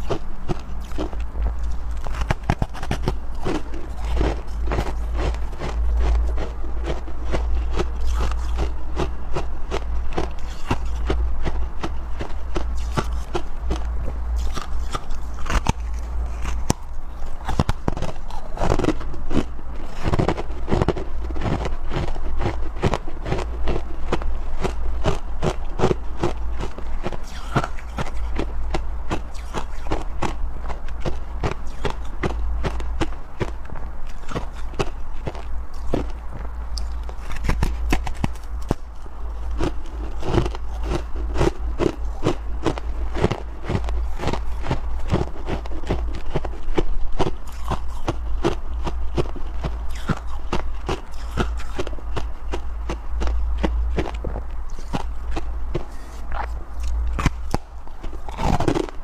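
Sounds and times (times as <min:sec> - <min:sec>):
chewing frost crunches: 0:00.0 - 0:59.0
low steady hum: 0:00.0 - 0:59.0.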